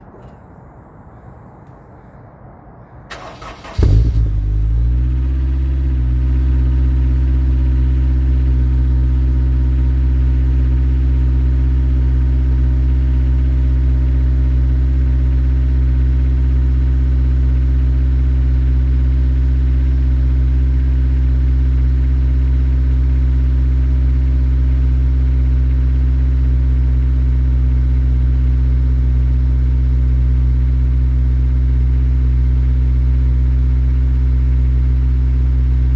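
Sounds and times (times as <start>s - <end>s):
car engine cranking and starting: 3.1s - 10.8s
car engine idling: 3.1s - 35.9s.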